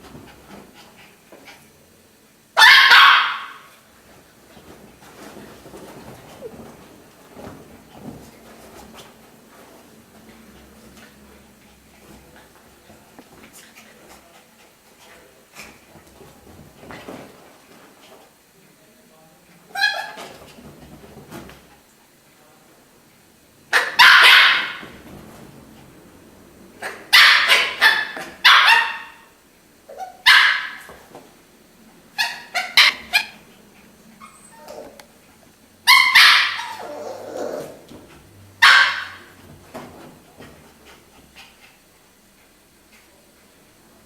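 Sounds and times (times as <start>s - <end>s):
dog barking: 2.6s - 3.7s, 23.7s - 24.9s, 26.8s - 29.3s, 30.0s - 30.9s, 35.9s - 37.0s, 38.6s - 39.4s.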